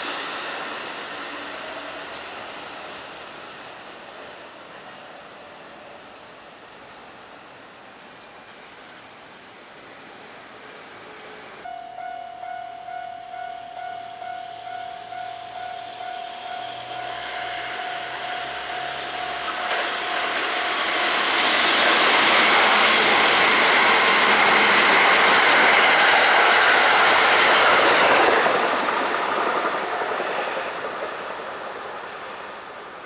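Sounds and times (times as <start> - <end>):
electric train passing at speed: 0.0 - 33.0
steady electronic tone: 11.7 - 22.1.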